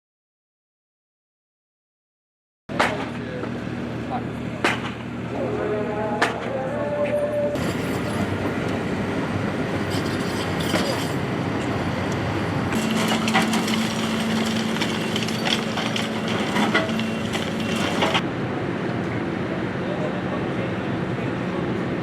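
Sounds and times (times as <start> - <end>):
rumble of activity: 2.8 - 18.2
clattering knocks of debris: 12.7 - 18.2.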